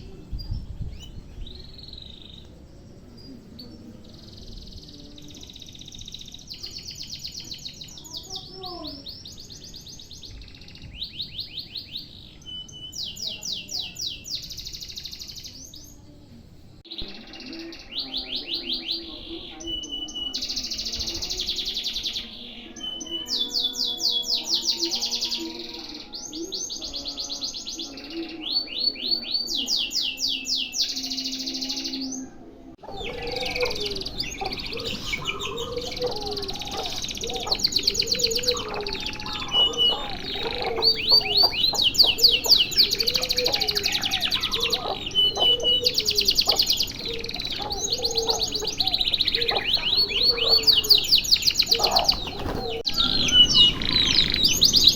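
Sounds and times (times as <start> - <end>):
canary singing trills: 0.0 - 16.1, 16.8 - 54.9.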